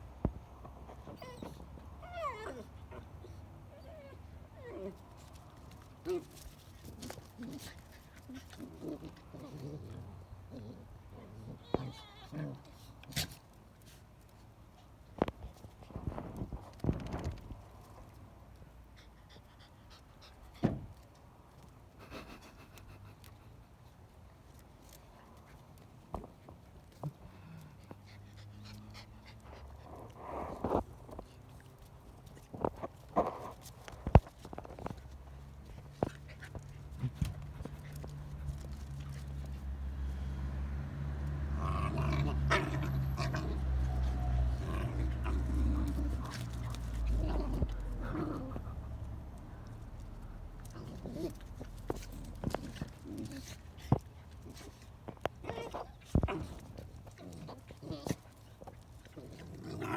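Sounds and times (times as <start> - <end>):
puppies growling: 4.6 - 13.1, 41.3 - 59.9.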